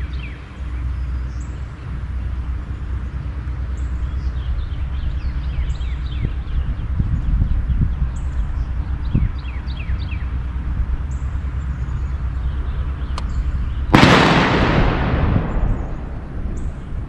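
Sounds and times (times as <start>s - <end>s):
wind rumble on microphone: 0.0s - 17.0s
loud rush of noise: 14.0s - 17.0s.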